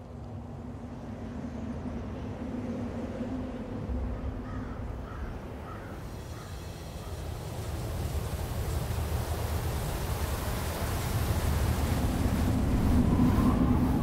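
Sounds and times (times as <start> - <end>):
low hum: 0.0 - 14.0
low steady rumble: 0.0 - 14.0
crow cawing: 4.4 - 6.5.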